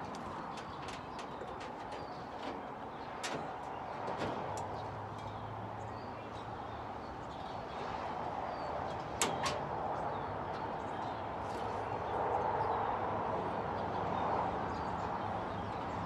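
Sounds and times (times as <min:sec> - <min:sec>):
wooden boards knocking and clattering: 0:00.0 - 0:05.3.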